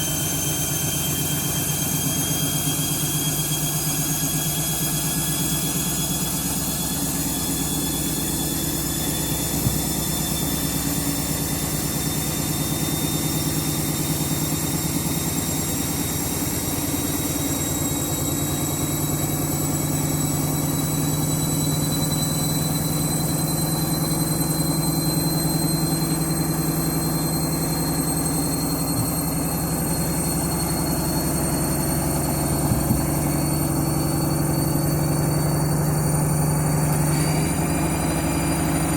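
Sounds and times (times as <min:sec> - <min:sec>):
washing machine motor hum and whine: 0:00.0 - 0:38.9.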